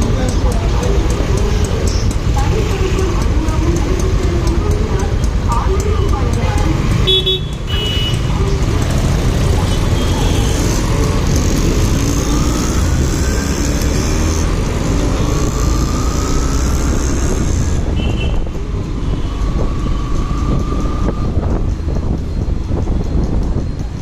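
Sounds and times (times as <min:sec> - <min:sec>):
motorcycle engine: 0:00.0 - 0:24.0
wind rush over microphone: 0:17.4 - 0:24.0.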